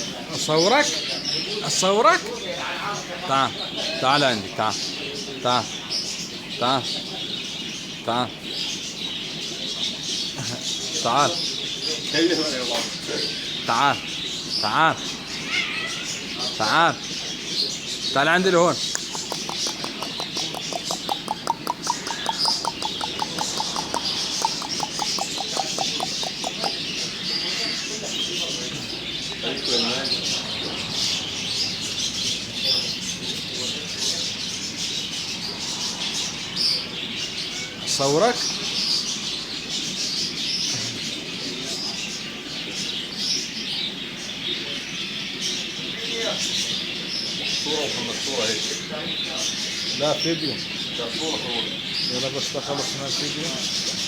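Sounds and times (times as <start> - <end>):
small birds chirping: 0.0 - 54.0
bird giving sharp rapid calls: 18.0 - 39.8.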